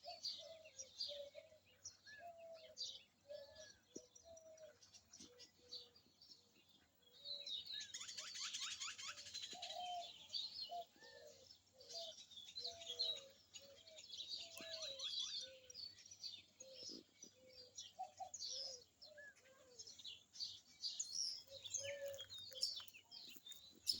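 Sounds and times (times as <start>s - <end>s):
birds chirping and trilling: 0.0s - 24.0s
lower bird calls: 7.1s - 24.0s.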